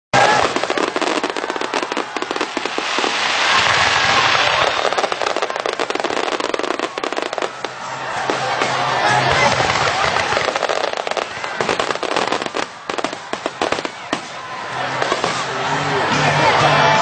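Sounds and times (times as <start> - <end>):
fireworks crackling: 0.2 - 15.5.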